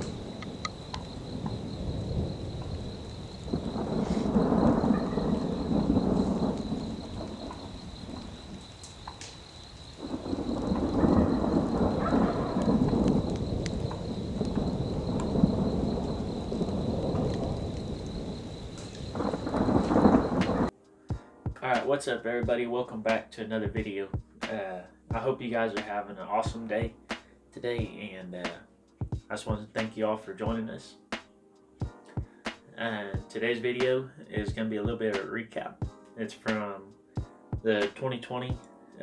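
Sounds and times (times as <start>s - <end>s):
rain: 0.0s - 20.7s
thunder rumbling: 0.0s - 20.7s.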